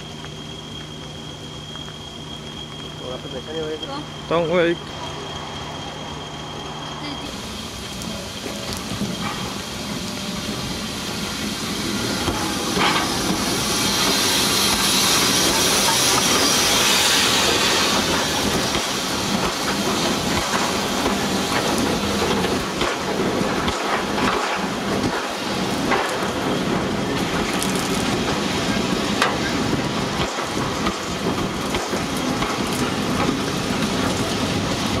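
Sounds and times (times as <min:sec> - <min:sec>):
train coaches rolling past: 0:00.0 - 0:35.0.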